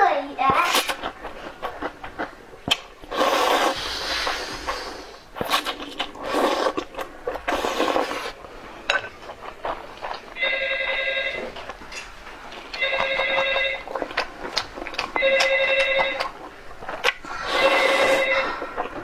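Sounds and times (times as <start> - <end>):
phone ringing: 10.4 - 11.6, 12.7 - 14.0, 15.1 - 16.4, 17.7 - 18.7.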